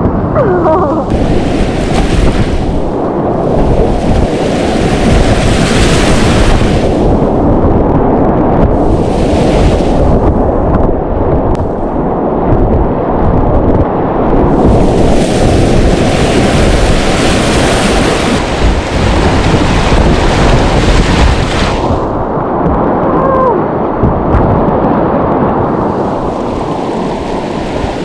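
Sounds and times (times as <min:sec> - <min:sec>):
wind buffeting microphone: 0:00.0 - 0:28.0
whitewater rushing: 0:14.5 - 0:22.0.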